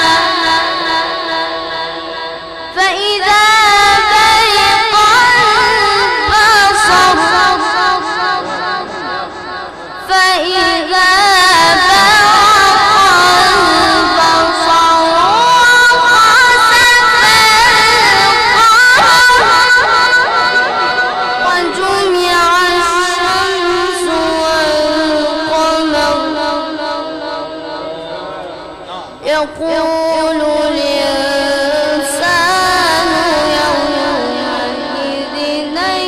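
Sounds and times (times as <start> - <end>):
boy reciting melodically: 0.0 - 36.0.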